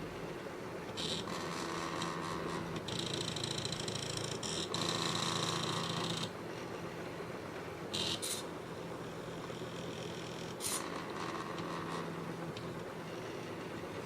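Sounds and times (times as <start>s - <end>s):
stepper motors humming and whining: 0.9s - 14.0s
short scratchy sounds: 8.0s - 8.5s.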